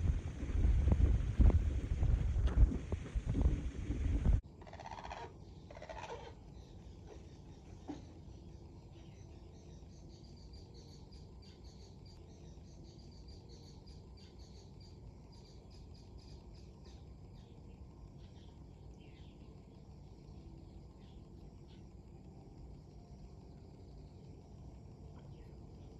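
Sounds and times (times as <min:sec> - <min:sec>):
wind rushing: 0:00.0 - 0:04.4
small birds chirping: 0:04.5 - 0:25.9.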